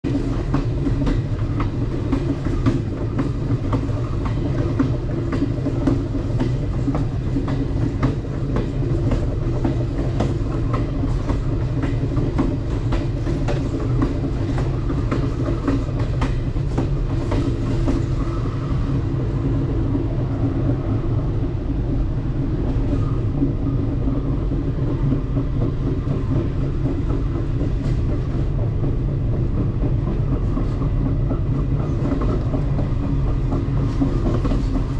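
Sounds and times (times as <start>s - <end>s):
train wheels rumbling: 0.0s - 34.9s
wheels clicking over rails: 0.1s - 34.9s.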